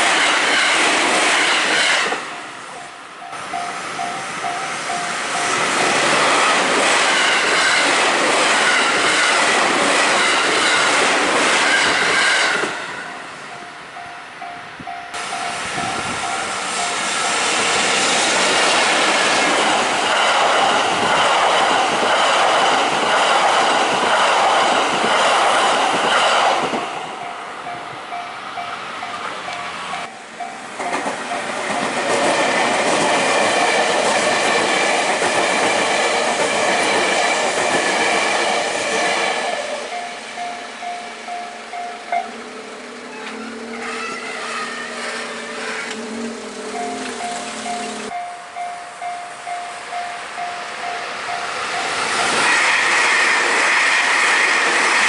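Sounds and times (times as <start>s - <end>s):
crossing warning bell ringing: 2.2s - 17.9s, 27.1s - 34.1s, 39.4s - 52.7s
train wheels clattering on rail joints: 3.2s - 12.8s, 28.6s - 40.5s.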